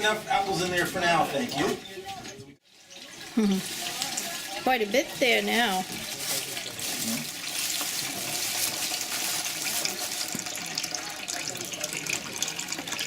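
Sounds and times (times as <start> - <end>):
liquid pouring into container: 2.7 - 13.0.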